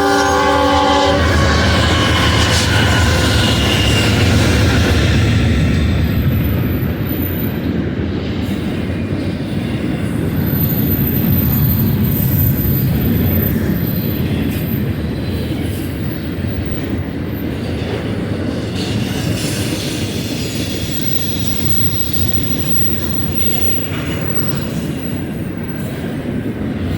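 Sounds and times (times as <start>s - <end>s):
freight train rumbling past: 0.0s - 26.9s
train wheels clattering: 1.1s - 26.9s
high-pitched wheel squeal: 10.3s - 17.3s, 20.4s - 26.1s.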